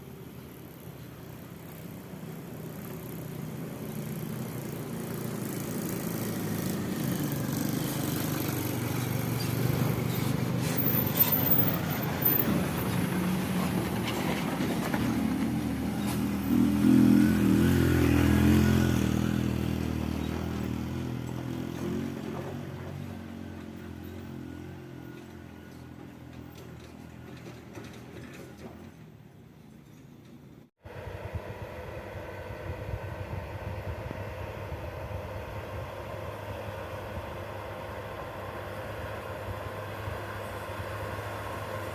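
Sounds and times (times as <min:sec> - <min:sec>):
truck diesel engine under load: 0:00.0 - 0:29.6, 0:30.4 - 0:41.9.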